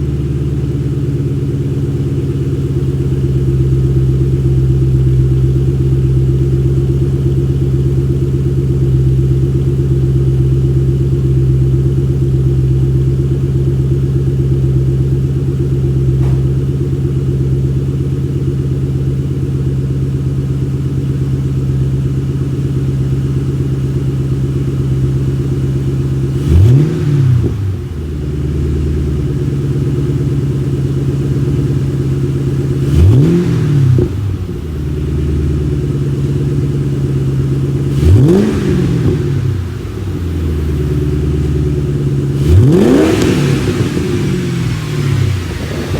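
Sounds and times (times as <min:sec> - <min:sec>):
car engine idling and revving: 0:00.0 - 0:45.9.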